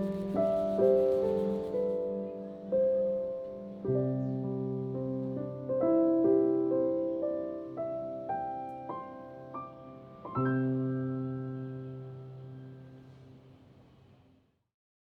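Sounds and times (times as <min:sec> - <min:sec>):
soft piano music: 0:00.0 - 0:14.1.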